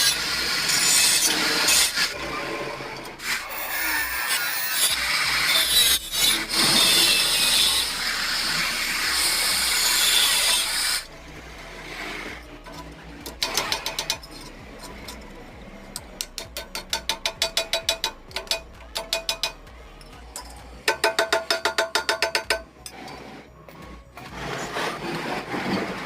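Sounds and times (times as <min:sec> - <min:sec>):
rough noise: 0:00.0 - 0:26.0
quick metal taps: 0:16.0 - 0:19.7.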